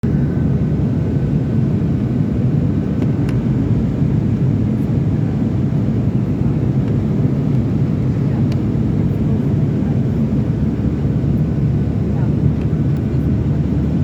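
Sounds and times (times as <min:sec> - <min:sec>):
airliner cabin engine rumble: 0:00.0 - 0:14.0.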